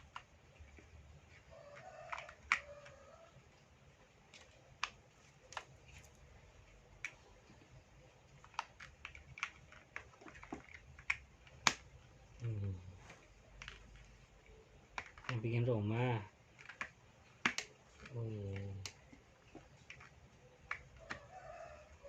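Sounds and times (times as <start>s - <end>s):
plastic toy blocks clicking: 0.0s - 3.4s, 4.3s - 5.8s, 8.3s - 12.5s, 13.5s - 14.3s, 14.9s - 22.0s.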